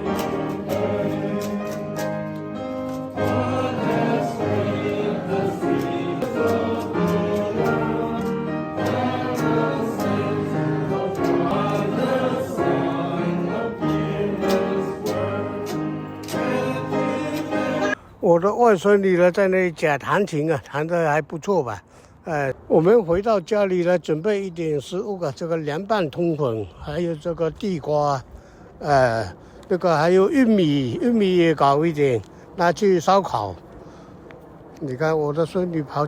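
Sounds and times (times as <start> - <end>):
choir singing gospel song: 0.0 - 18.0
instrumental accompaniment: 0.0 - 18.0.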